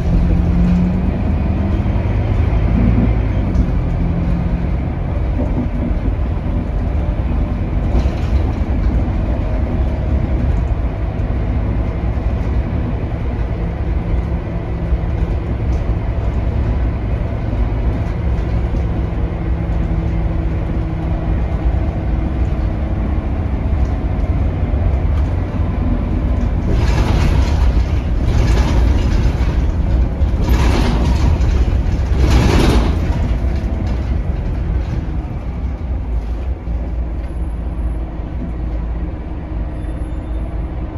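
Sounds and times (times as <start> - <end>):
bus engine drone: 0.0 - 40.9
loud engine surges: 14.2 - 40.9.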